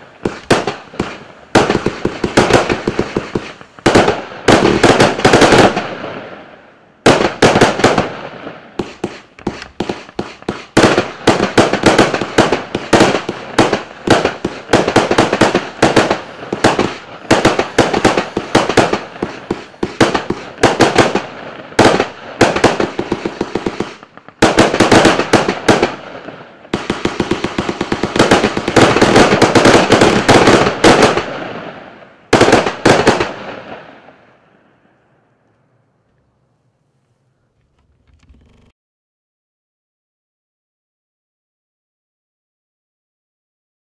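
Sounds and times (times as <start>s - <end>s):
fireworks firing volleys of shots: 0.0s - 34.4s.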